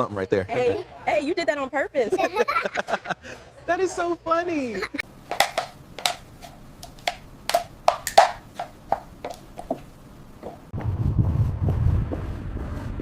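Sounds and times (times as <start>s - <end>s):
low steady rumble: 8.8s - 13.0s.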